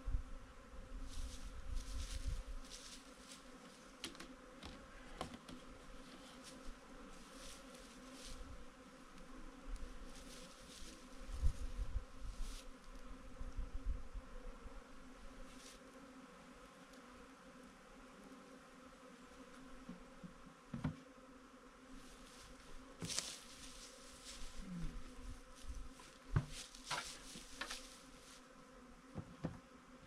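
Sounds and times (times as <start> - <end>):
honeybees buzzing: 0.0 - 30.0
hissy rustles: 1.1 - 3.5.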